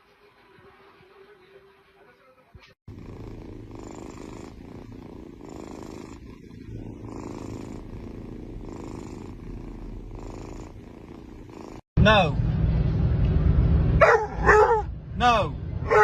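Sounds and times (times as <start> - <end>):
cat purring: 2.9 - 11.9.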